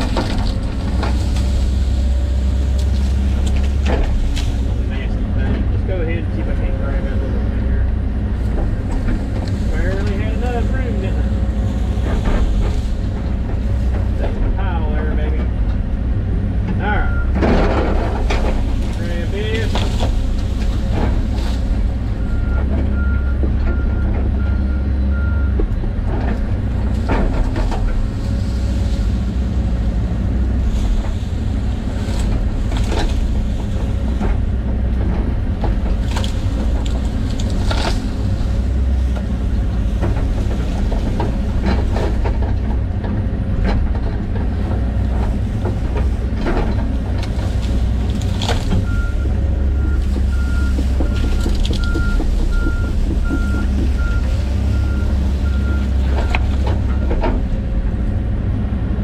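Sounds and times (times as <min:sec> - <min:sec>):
sharp cracks and knocks: 0:00.0 - 0:04.8, 0:31.9 - 0:39.3, 0:39.9 - 0:57.6
excavator diesel engine running: 0:00.0 - 0:59.0
travel alarm beeping: 0:48.8 - 0:57.1.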